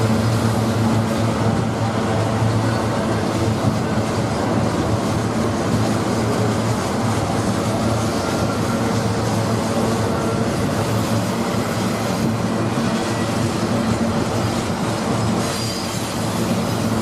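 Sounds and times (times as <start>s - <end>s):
diesel locomotive engines humming: 0.0s - 17.0s
train rumbling on rails: 0.0s - 17.0s.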